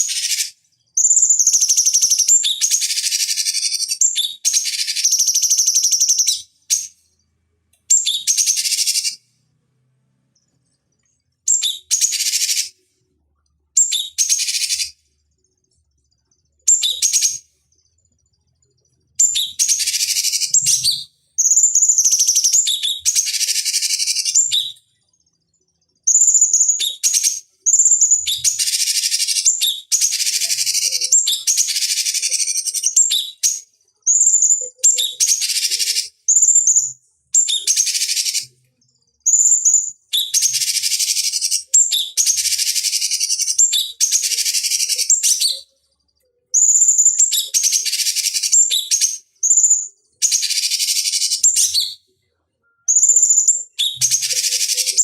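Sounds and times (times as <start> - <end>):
bird calling with scratchy chatter: 52.9 - 55.0.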